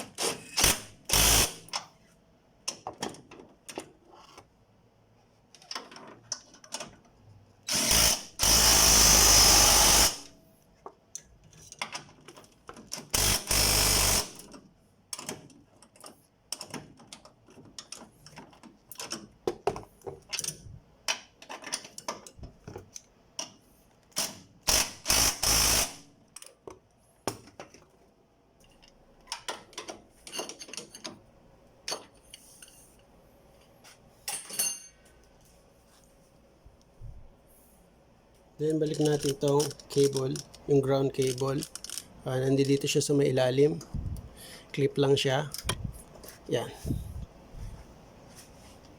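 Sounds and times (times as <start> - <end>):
impact wrench bursts: 0.2 - 1.7, 7.7 - 10.3, 13.1 - 14.5, 24.2 - 26.0
tools clinking and knocking: 28.6 - 31.2, 31.8 - 33.0, 34.2 - 35.2.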